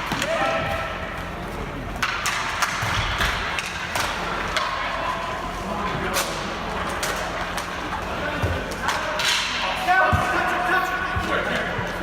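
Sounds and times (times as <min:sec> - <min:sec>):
hockey sticks striking ball: 0:00.0 - 0:00.6, 0:02.0 - 0:05.0, 0:06.2 - 0:11.4
players' voices: 0:00.0 - 0:12.0.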